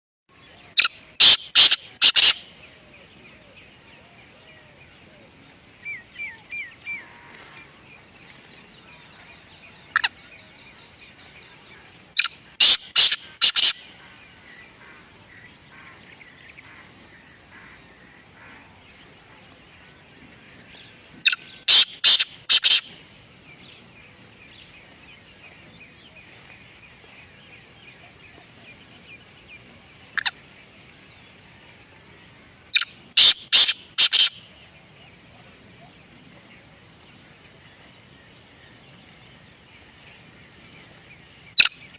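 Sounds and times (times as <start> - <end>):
francolin calling harsh phrases: 0.7 - 2.6, 11.4 - 15.0, 21.3 - 23.3, 32.7 - 34.7.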